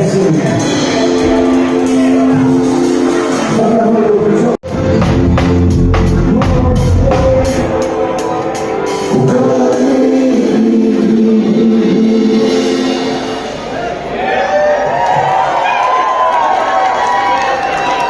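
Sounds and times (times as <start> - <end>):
drum kit: 0.0 - 4.0, 4.6 - 14.0
reggae band music: 0.0 - 14.2
person singing: 0.4 - 13.5.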